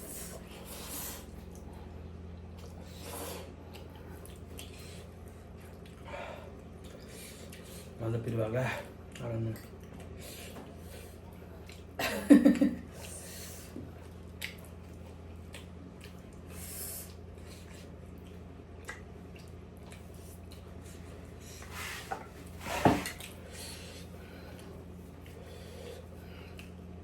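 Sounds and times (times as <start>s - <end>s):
low steady hum: 0.0s - 27.0s
wet mouth eating noises: 2.5s - 8.0s, 12.9s - 21.6s.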